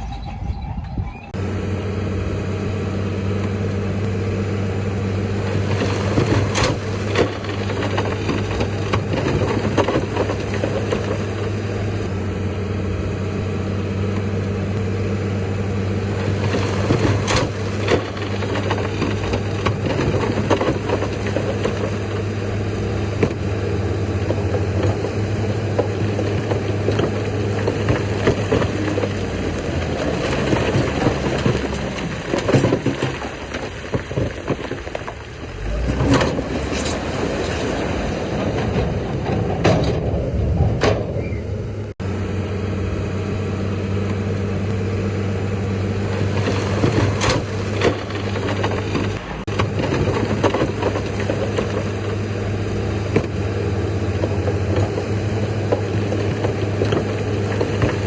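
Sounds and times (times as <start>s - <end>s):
heavy diesel machinery running: 0.0s - 58.0s
knocks and clanks: 5.4s - 12.1s, 16.2s - 42.0s, 46.0s - 58.0s.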